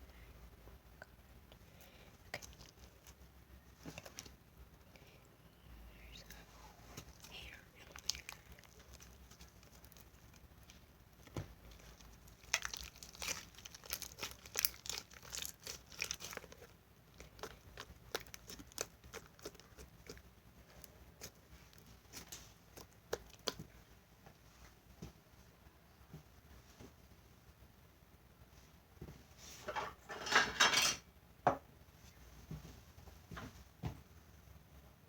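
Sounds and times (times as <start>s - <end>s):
sticky slime pops and crackles: 7.9s - 20.3s, 21.2s - 23.7s.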